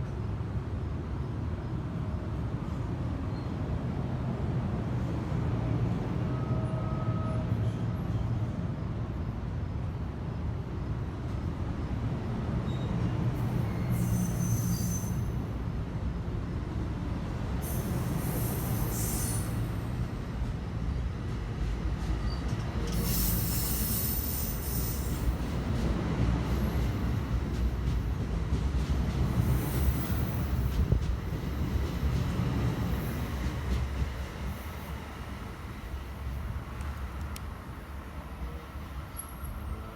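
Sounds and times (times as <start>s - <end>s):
train wheels rumbling on rail: 0.0s - 39.9s
high-pitched wheel squeal: 13.7s - 15.3s.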